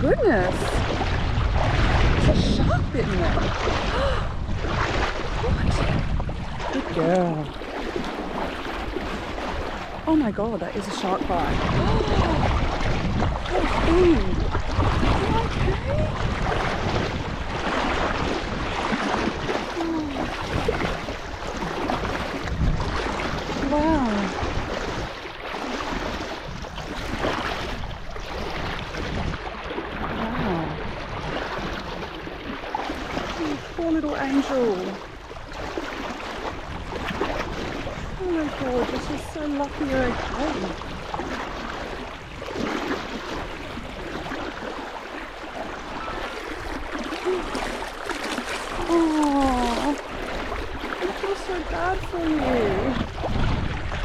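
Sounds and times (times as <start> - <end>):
sea water washing in shallows: 0.0 - 54.0
wind rumbling on microphone: 0.0 - 54.0
ocean surf: 30.0 - 54.0.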